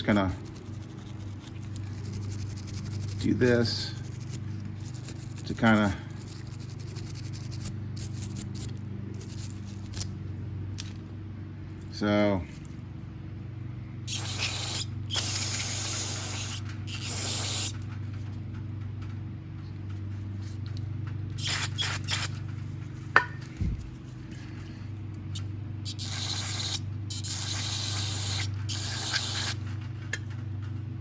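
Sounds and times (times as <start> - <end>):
steady low hum: 0.0 - 31.0
aerosol spray hissing: 14.1 - 17.7, 21.4 - 22.4, 25.9 - 29.6.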